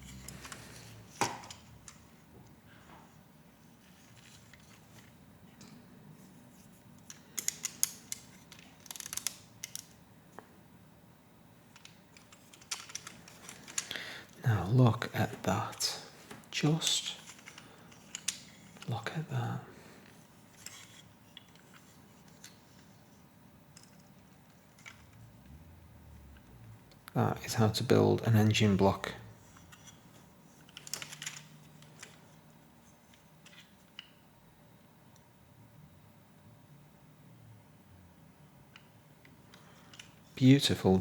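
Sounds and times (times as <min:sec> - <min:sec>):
plastic pieces clicking: 0:07.0 - 0:10.0, 0:11.7 - 0:14.4, 0:17.0 - 0:18.9, 0:30.6 - 0:32.2.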